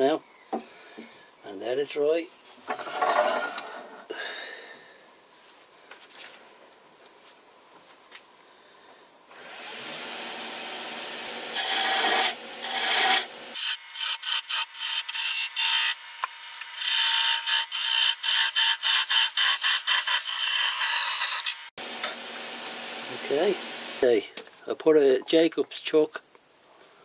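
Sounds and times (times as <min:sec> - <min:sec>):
parting tool scraping wood on lathe: 0:11.5 - 0:16.0.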